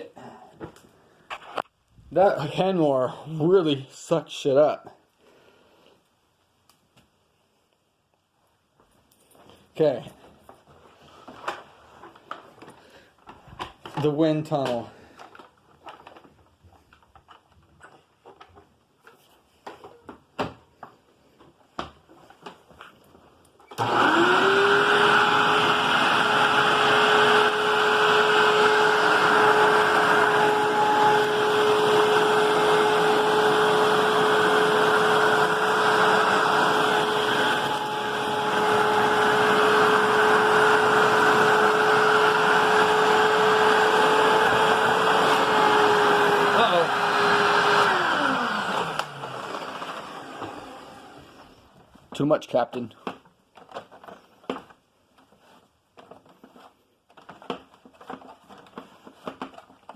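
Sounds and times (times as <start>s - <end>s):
vacuum cleaner motor whine: 23.7s - 51.5s.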